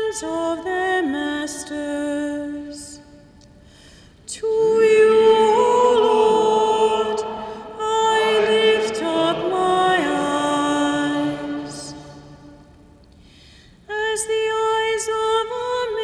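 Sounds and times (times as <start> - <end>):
psalm singing on held notes: 4.3 - 13.1.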